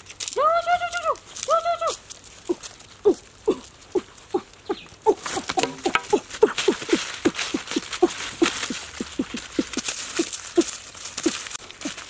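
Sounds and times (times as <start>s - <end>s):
dry leaves rustling and crackling: 0.0s - 12.0s
short falling animal calls: 2.5s - 12.0s.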